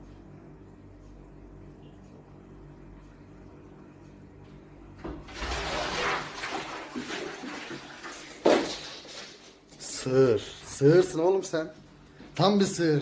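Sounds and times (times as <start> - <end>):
steady low hum: 0.0 - 5.6, 8.2 - 13.0
water splashing and sloshing: 5.0 - 9.7.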